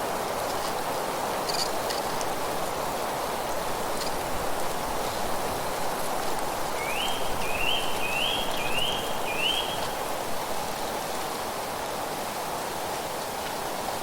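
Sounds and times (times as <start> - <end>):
wind or rain noise: 0.0 - 14.0.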